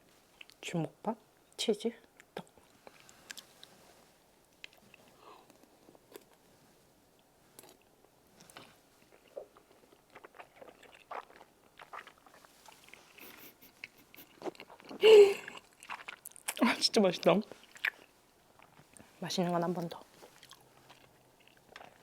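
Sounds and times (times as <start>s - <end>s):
person chewing food: 2.1s - 3.8s, 4.5s - 6.4s, 7.6s - 16.6s, 17.6s - 19.1s, 20.2s - 22.0s.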